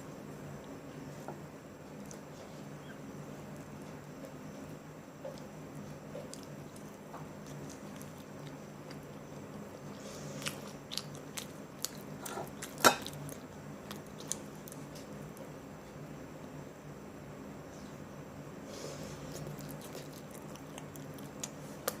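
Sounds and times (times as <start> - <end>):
person chewing and crunching food: 1.8 - 15.6, 18.9 - 22.0.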